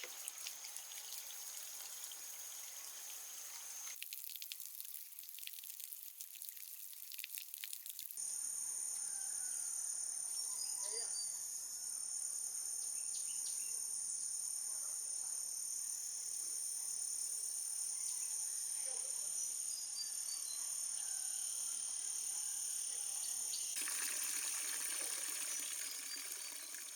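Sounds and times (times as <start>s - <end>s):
insects droning: 0.0s - 4.0s, 8.2s - 26.9s
water hissing: 0.0s - 4.0s, 23.8s - 26.9s
faint bird chirps: 9.0s - 11.5s, 17.9s - 23.8s.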